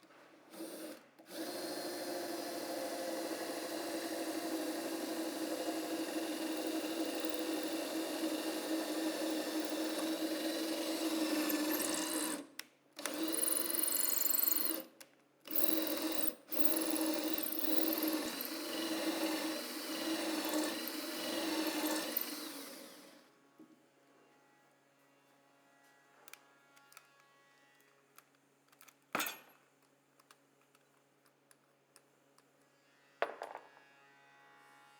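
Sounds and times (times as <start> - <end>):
electric drill running: 0.6 - 14.9, 15.5 - 23.2.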